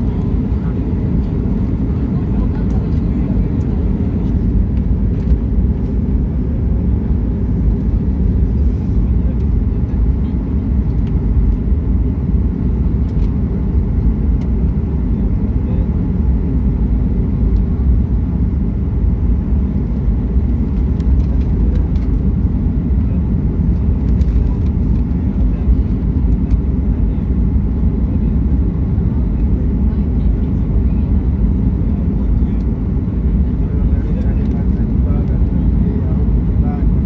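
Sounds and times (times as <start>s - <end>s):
jet engines rumbling: 0.0s - 37.0s.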